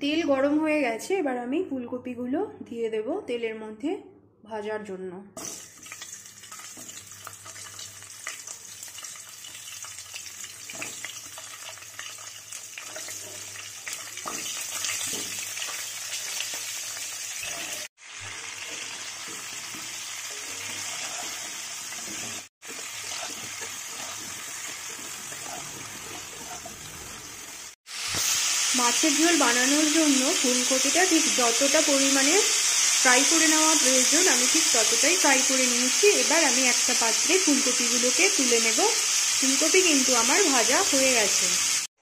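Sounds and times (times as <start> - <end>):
vegetables sizzling in oil: 5.4 - 41.9.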